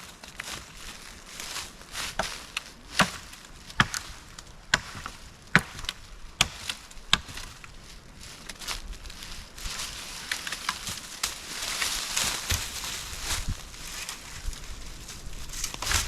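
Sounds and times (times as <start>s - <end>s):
axe chopping wood: 2.2s - 3.2s, 4.7s - 7.4s.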